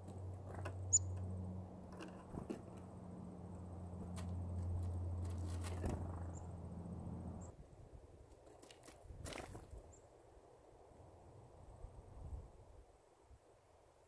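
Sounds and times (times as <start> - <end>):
steady low hum: 0.0 - 7.5
high bird chirp: 0.9 - 1.2
small birds ticking and rustling: 4.1 - 6.5, 8.3 - 10.1.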